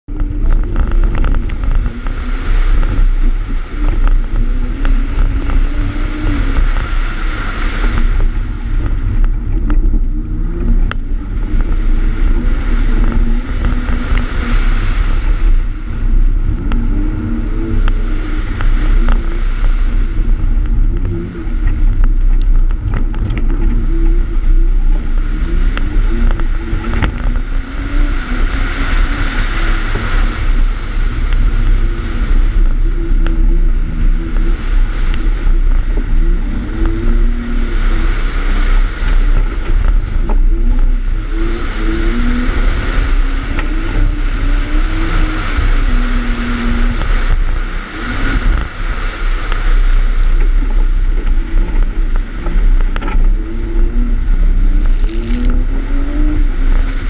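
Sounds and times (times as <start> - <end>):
wind noise: 0.0 - 57.0
car engine revving: 54.7 - 56.7.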